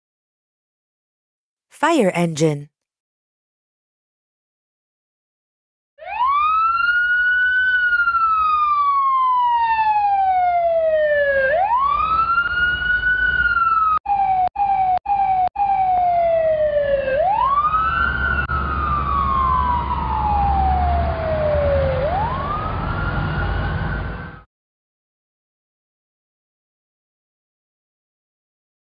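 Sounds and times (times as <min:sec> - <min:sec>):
fire engine siren wailing: 0:06.0 - 0:24.4.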